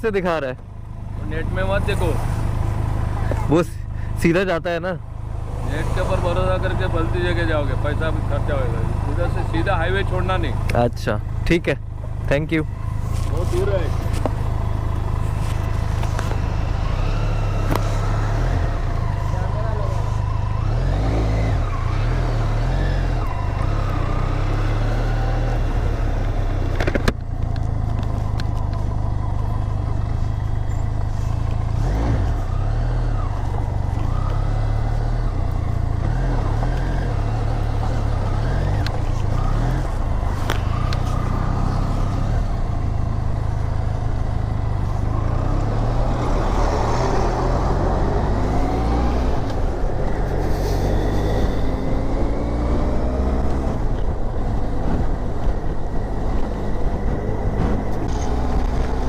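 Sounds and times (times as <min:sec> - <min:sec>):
motorcycle engine running: 0:00.0 - 0:59.0
wind rumble on microphone: 0:49.3 - 0:59.0.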